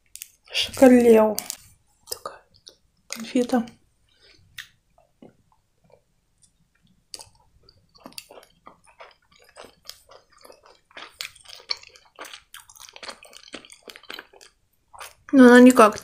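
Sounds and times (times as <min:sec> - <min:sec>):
chewing with wet mouth clicks: 0:01.4 - 0:03.2, 0:04.5 - 0:15.3.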